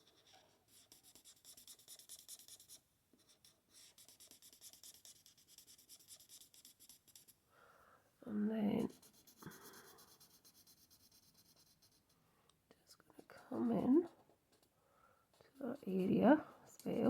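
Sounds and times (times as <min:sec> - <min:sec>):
marker scratching on card: 0:00.0 - 0:07.4, 0:08.8 - 0:12.2.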